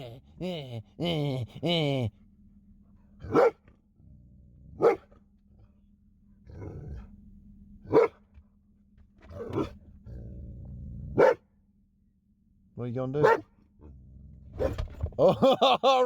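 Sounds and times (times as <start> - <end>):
dog barking: 3.2 - 3.6, 4.8 - 5.1, 7.9 - 8.2, 9.4 - 9.8, 11.2 - 11.5, 13.2 - 13.5.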